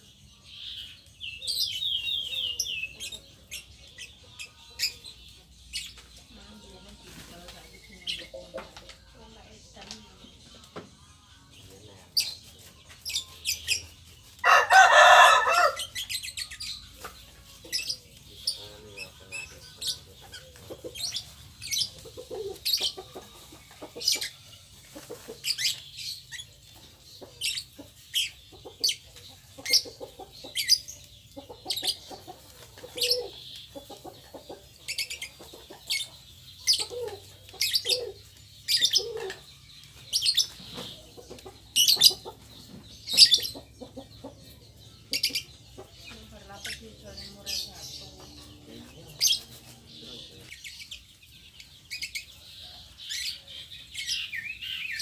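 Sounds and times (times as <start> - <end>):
birds chirping: 0.0 - 55.0
chickens clucking: 0.0 - 55.0.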